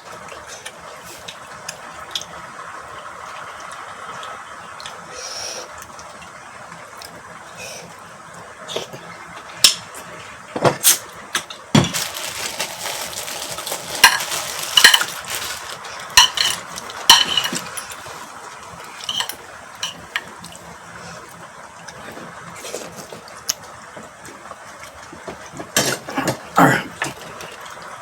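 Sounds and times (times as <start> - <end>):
cutlery clinking on plates: 14.0 - 18.2, 19.0 - 20.3.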